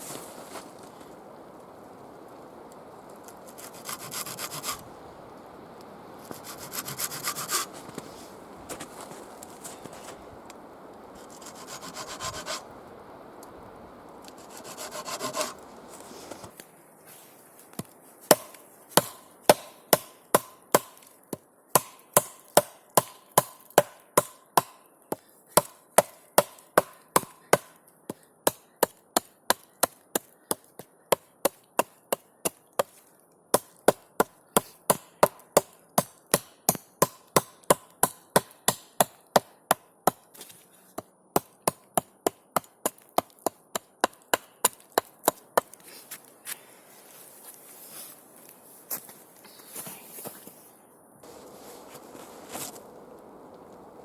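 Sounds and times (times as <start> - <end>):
scraping on wood: 3.4 - 4.8, 6.2 - 10.2, 11.2 - 12.7, 14.2 - 16.6.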